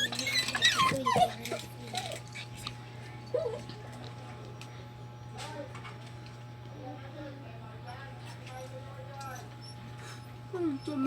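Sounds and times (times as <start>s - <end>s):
dog whining and crying: 0.0s - 2.2s, 9.3s - 11.0s.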